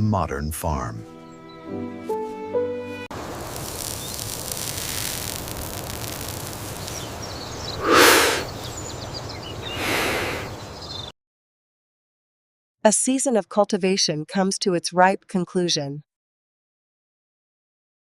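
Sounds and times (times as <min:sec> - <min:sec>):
background music: 0:00.6 - 0:03.1
outdoor ambient noise: 0:03.1 - 0:11.1
whooshing swells: 0:07.8 - 0:08.5.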